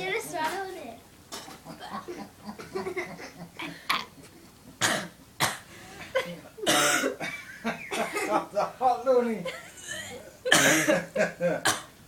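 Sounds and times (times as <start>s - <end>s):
boy coughing: 4.8s - 7.3s, 7.9s - 8.3s, 9.8s - 11.9s.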